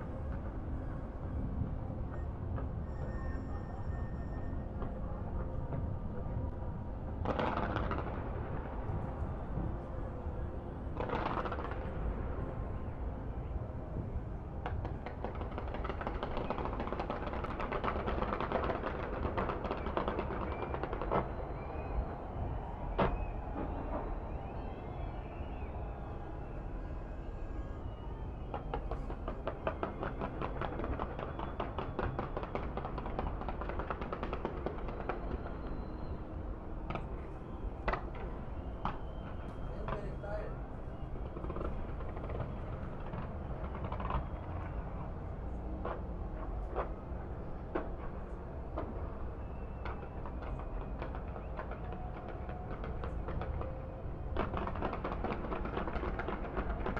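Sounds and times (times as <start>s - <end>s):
fireworks crackling barrage: 7.2s - 9.2s, 10.9s - 12.2s, 14.6s - 25.6s, 28.4s - 56.9s
firework bangs: 54.3s - 56.9s.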